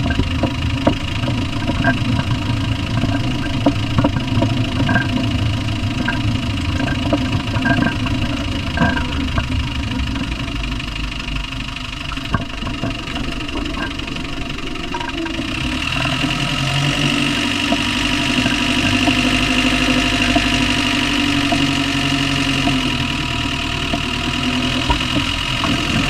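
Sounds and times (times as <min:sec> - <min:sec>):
diesel engine running: 0:00.0 - 0:26.0
sharp irregular engine knocks: 0:00.0 - 0:26.0.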